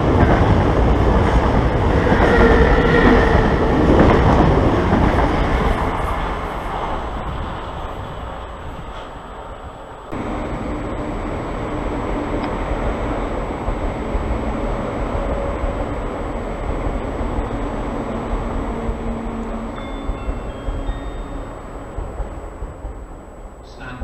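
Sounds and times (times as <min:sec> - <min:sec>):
electric train rumbling: 0:00.0 - 0:24.0.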